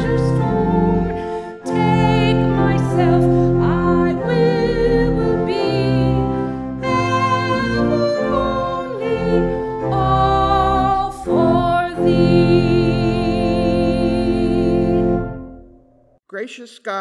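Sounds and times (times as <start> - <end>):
people singing a hymn: 0.0 - 15.4
instrumental accompaniment: 0.0 - 16.0.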